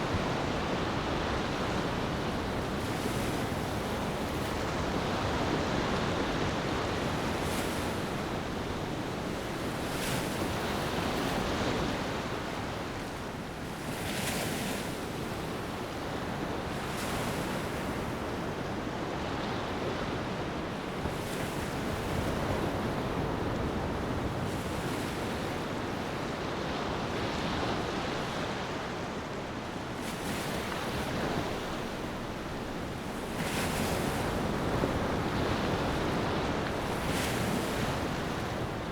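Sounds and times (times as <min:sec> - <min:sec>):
ocean waves breaking on beach: 0:00.0 - 0:38.9
wind: 0:00.0 - 0:38.9.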